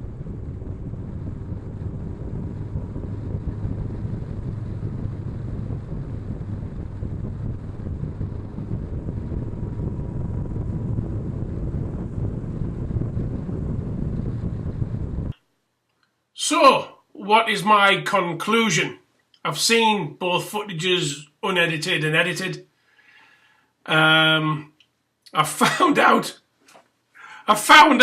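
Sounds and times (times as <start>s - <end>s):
motorcycle engine running: 0.0s - 15.3s
wind buffeting microphone: 0.0s - 15.4s.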